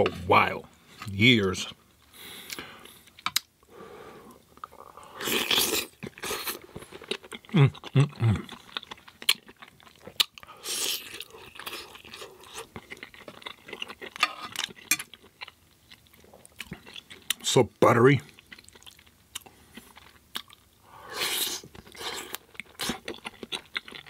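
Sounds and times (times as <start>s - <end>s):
wet chewing and mouth clicks: 4.4s - 17.5s, 18.3s - 24.0s.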